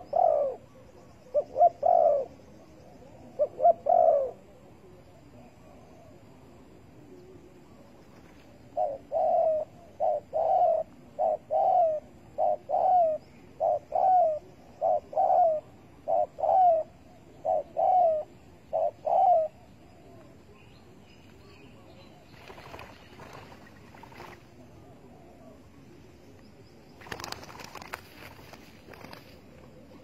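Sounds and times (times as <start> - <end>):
dove cooing: 0.0 - 20.7, 27.0 - 30.0.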